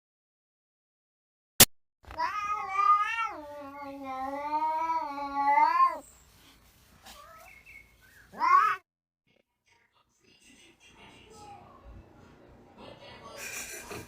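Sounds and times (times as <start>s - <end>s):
cat yowling: 2.2s - 6.0s, 8.3s - 8.8s.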